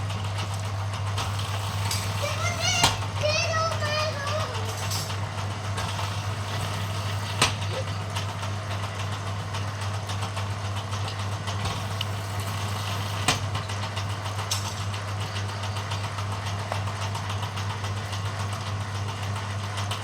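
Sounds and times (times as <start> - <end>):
machine humming: 0.0 - 17.4.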